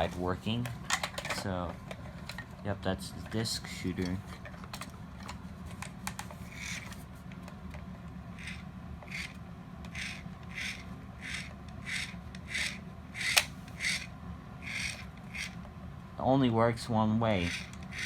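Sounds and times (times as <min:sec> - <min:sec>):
plastic toy mechanism scraping: 0:04.0 - 0:07.1, 0:08.4 - 0:15.6, 0:17.4 - 0:18.0.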